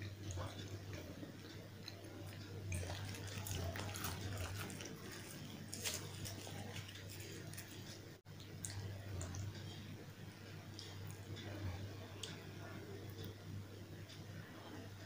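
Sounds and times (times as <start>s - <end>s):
wet chewing: 0.0s - 9.8s
steady low hum: 0.0s - 15.0s.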